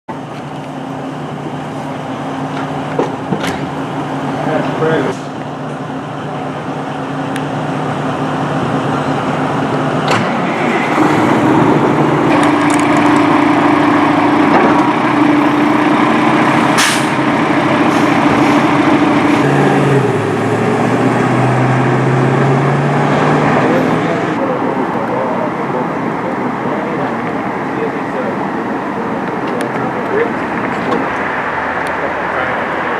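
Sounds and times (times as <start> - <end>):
truck engine running: 0.1 - 32.9.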